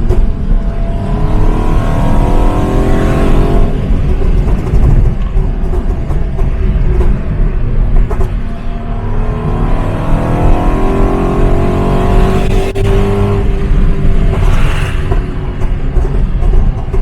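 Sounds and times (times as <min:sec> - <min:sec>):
exhaust pops and crackles: 0:00.0 - 0:02.5, 0:03.2 - 0:08.7, 0:12.6 - 0:17.0
car engine accelerating: 0:00.0 - 0:17.0.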